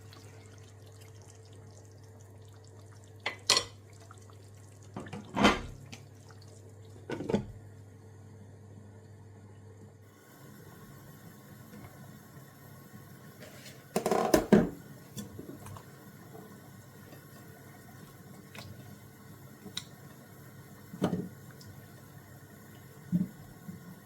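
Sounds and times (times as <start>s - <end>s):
wet squishing of food in pot: 0.0s - 5.0s.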